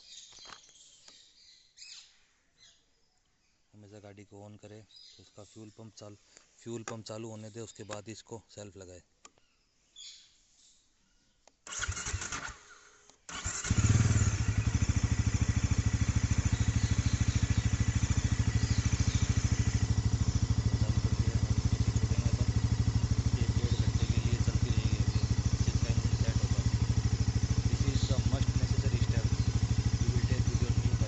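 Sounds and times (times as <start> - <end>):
motorcycle engine starter cranking: 11.7 - 31.0
motorcycle engine idling: 13.3 - 31.0.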